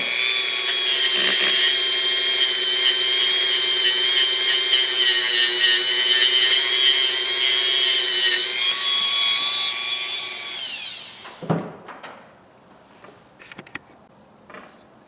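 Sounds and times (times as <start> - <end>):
power tool whining: 0.0 - 11.4.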